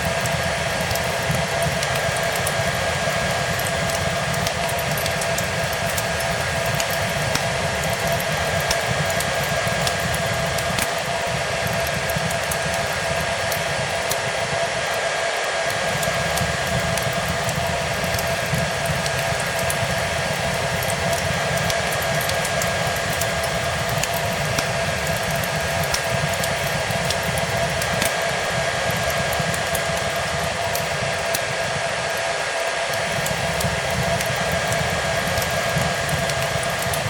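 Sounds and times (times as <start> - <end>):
hair dryer running: 0.0 - 37.0
wood fire crackling: 0.0 - 37.0.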